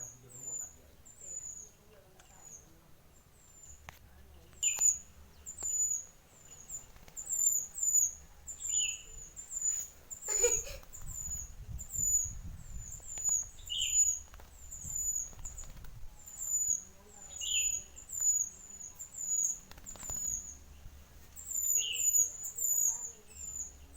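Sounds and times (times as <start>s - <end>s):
bird chirping: 0.0s - 23.9s
bird rustling: 3.4s - 7.8s, 9.2s - 18.3s, 19.0s - 23.5s.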